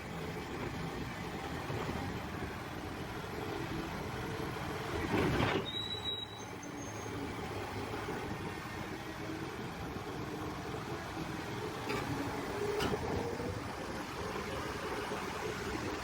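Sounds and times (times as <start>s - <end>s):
excavator engine running: 0.0s - 16.0s
brief high squeal: 5.6s - 7.2s.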